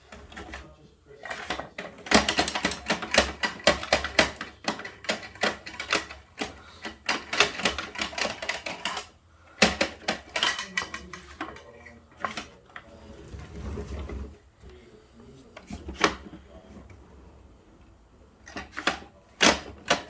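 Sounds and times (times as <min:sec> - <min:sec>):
toy trucks clicking and clacking: 0:00.0 - 0:13.0, 0:18.4 - 0:20.0.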